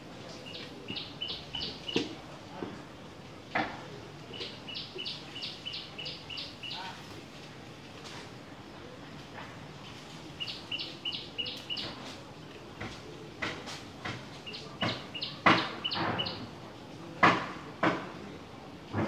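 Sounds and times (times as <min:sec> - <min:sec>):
bird chirping: 0:00.4 - 0:02.1, 0:04.3 - 0:06.8, 0:10.4 - 0:11.9, 0:14.5 - 0:16.4.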